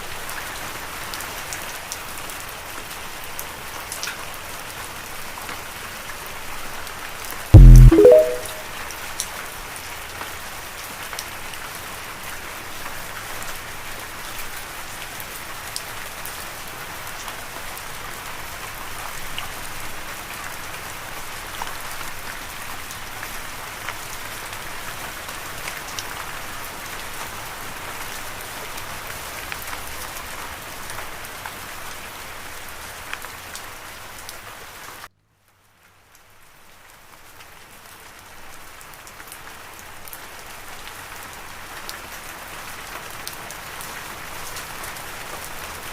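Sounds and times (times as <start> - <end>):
raindrops ticking sharply: 7.6 - 8.6
steady rain falling: 10.2 - 45.9.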